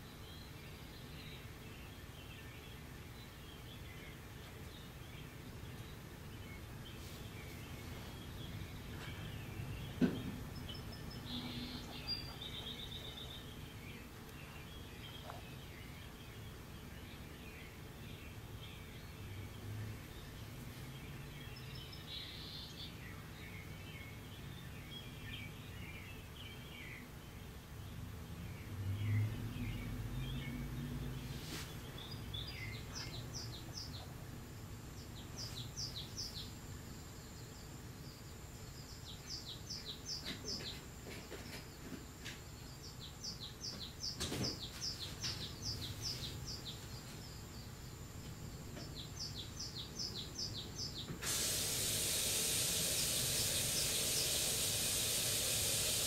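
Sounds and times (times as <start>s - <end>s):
steady hiss: 0.0s - 27.3s, 30.3s - 56.0s
bird chirps and calls: 0.0s - 27.5s, 28.6s - 34.3s, 48.6s - 56.0s.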